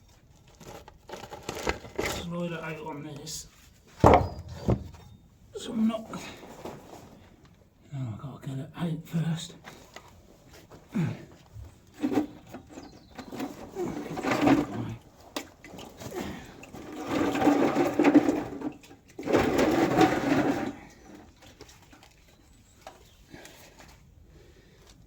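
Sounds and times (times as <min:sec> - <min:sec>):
heavy tank scraping and grating: 0:16.0 - 0:21.0.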